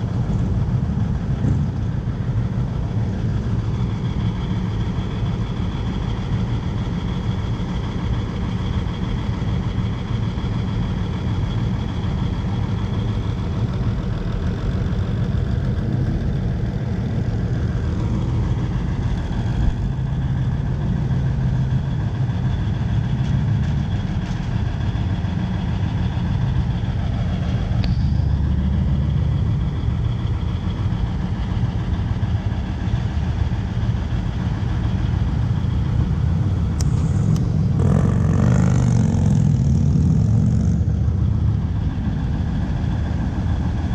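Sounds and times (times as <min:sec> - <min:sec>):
car engines idling: 0:00.0 - 0:43.9.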